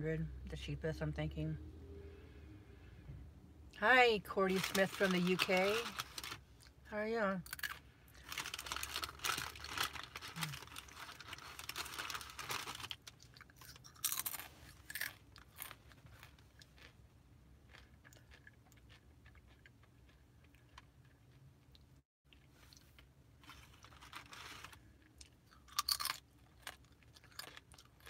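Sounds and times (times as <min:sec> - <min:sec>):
person chewing food: 0:07.5 - 0:24.0, 0:24.6 - 0:28.0.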